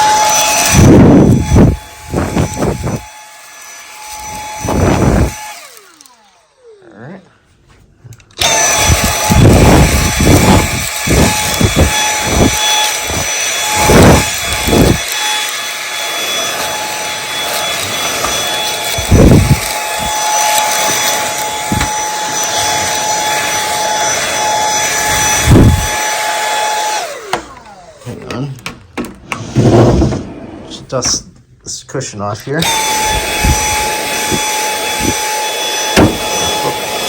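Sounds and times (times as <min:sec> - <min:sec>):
handheld vacuum whining: 0:00.0 - 0:30.2, 0:32.4 - 0:37.0
low thumps and bumps: 0:19.0 - 0:20.2.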